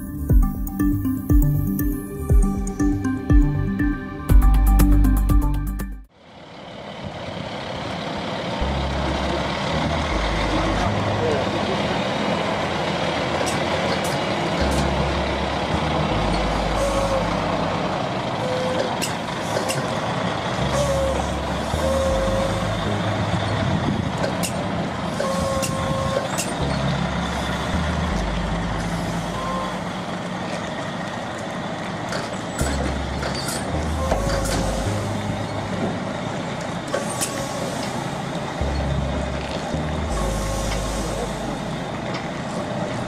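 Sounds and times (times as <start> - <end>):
truck diesel engine rumbling: 0.0 - 43.0.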